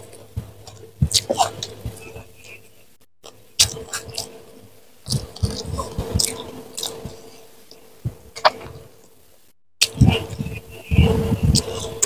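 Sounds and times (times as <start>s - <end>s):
wet chewing and crunching: 3.2s - 4.4s, 5.1s - 8.6s.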